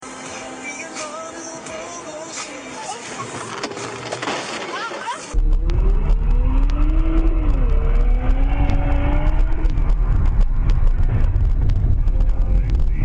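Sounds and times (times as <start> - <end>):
road rumble: 2.4 - 13.0
car engine: 5.1 - 13.0.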